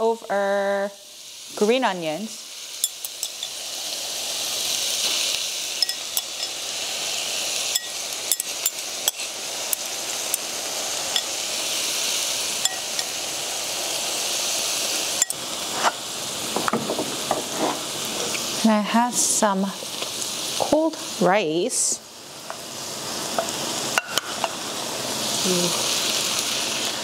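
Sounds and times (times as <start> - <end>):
food sizzling on grill plate: 0.0 - 27.0
metal utensil clicking on stone: 7.7 - 10.4.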